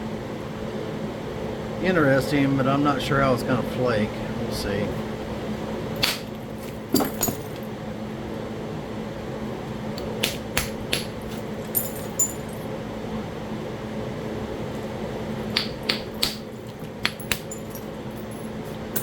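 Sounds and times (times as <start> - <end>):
fan humming: 0.0 - 19.0
stone knapping clicks: 10.0 - 11.1, 15.5 - 17.5.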